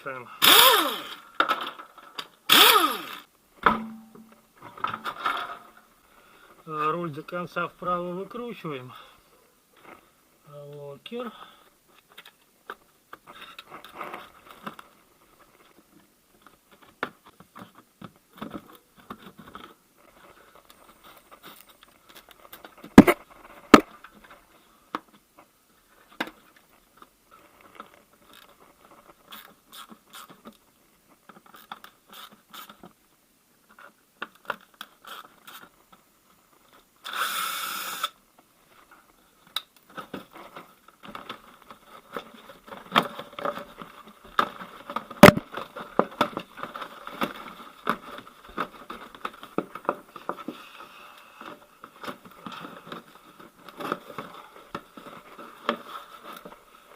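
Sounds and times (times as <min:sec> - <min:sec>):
sharp knocks: 0:03.6 - 0:05.0, 0:45.2 - 0:45.4.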